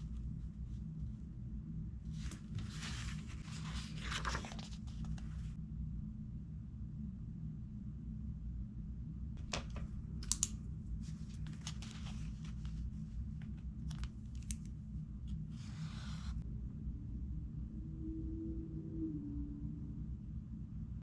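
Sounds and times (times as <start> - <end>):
steady low hum: 0.0 - 21.0
page turning swish: 2.1 - 5.5, 11.0 - 14.7
book pages rustling: 2.1 - 5.6, 9.4 - 16.4.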